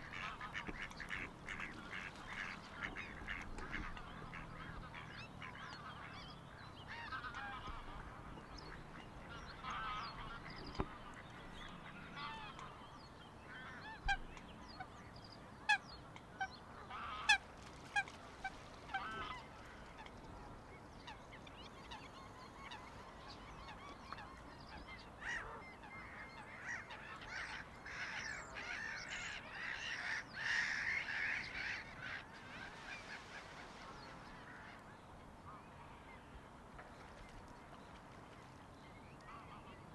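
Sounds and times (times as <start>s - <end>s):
birds calling: 0.0s - 14.9s.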